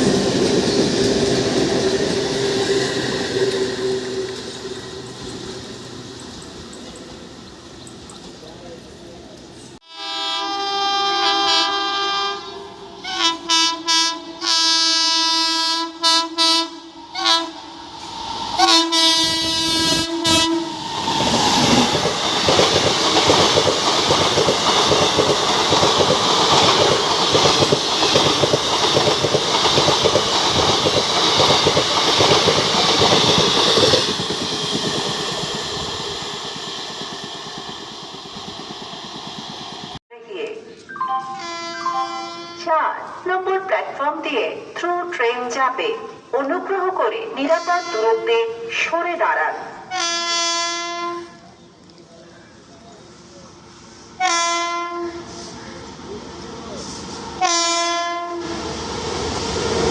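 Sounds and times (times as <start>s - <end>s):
train horn blasts: 9.8s - 17.6s, 18.6s - 20.7s, 41.2s - 42.7s, 47.5s - 48.2s, 49.9s - 51.4s, 54.2s - 55.5s, 57.4s - 58.6s
train wheels clattering past: 17.1s - 40.0s.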